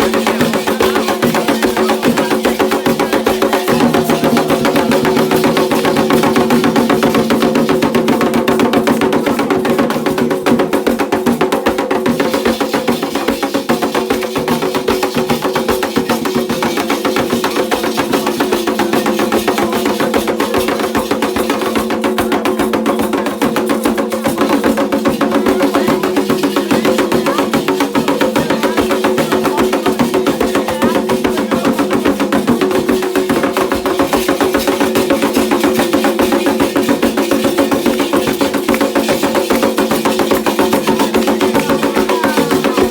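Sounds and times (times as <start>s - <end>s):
fast hand drumming: 0.0s - 42.9s.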